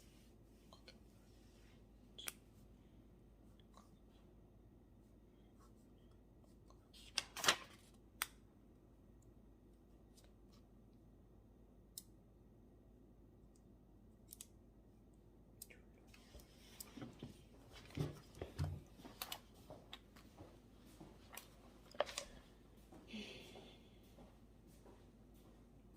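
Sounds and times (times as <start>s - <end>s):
paper rustling: 7.0s - 8.0s.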